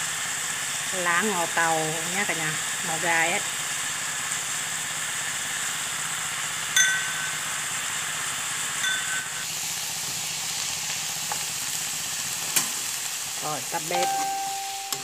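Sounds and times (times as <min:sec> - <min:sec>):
food sizzling in a pan: 0:00.0 - 0:15.0
ringing clinks against pan: 0:06.8 - 0:07.6, 0:08.8 - 0:09.4.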